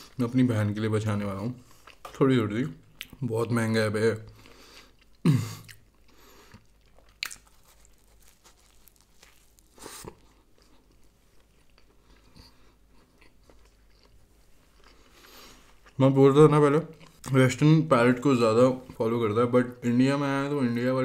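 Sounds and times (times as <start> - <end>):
crunchy pastry chewing: 4.3 - 16.2.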